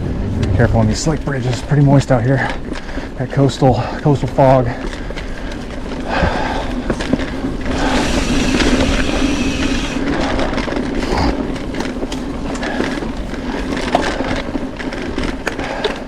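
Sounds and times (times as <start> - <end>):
bike frame rattling: 0.0 - 16.0
bike tyres crunching on dirt: 0.0 - 16.0.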